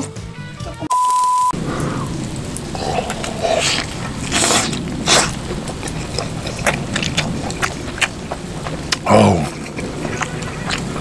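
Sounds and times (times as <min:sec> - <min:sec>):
mouth smacks: 0:02.8 - 0:11.0
person chewing: 0:02.8 - 0:11.0.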